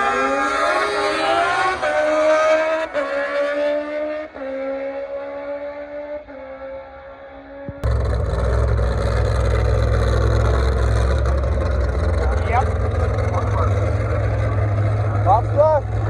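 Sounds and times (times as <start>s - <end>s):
drag car engine accelerating: 0.0s - 16.0s
deep engine rumble: 7.7s - 16.0s.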